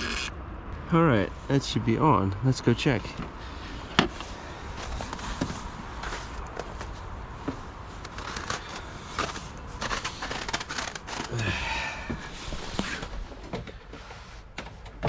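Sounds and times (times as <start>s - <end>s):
squeaking scrape: 0.0s - 0.3s, 7.9s - 11.4s
low steady rumble: 0.0s - 13.4s
handling clicks and crunches: 4.8s - 11.4s.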